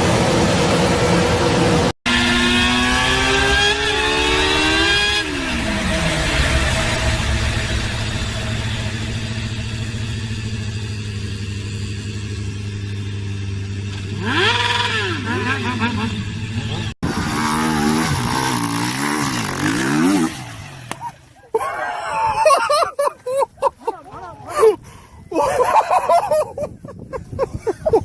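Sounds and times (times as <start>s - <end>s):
vehicle engine revving: 0.0s - 21.2s
engine throttle blips: 0.0s - 21.4s.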